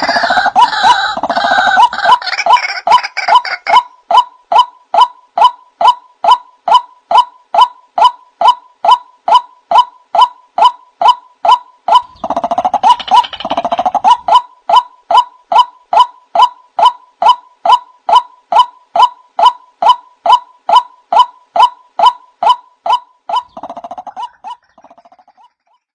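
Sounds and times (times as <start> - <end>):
bird repeating wak call: 0.0 - 25.6
rapid bubbling bird notes: 22.9 - 25.9.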